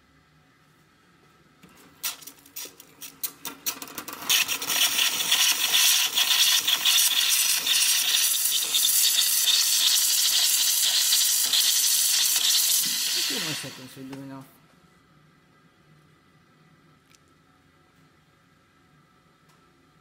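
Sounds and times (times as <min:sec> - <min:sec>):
steam wand spitting and hissing: 0:04.3 - 0:14.0.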